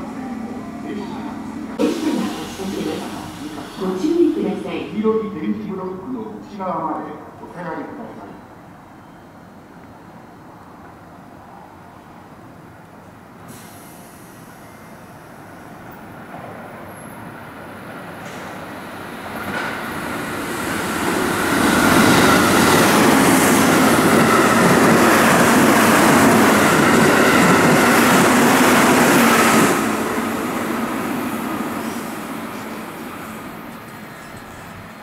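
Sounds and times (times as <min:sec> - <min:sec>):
train wheels rushing on rail: 0:00.0 - 0:05.0, 0:13.4 - 0:35.0.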